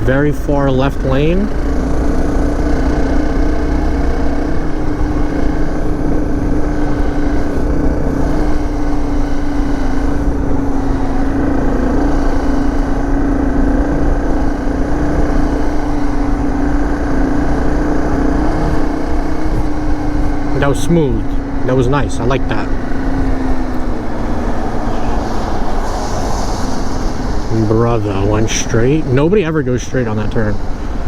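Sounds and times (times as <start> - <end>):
dirt bike engine running: 0.0 - 31.0
wind rumble on microphone: 1.5 - 20.6.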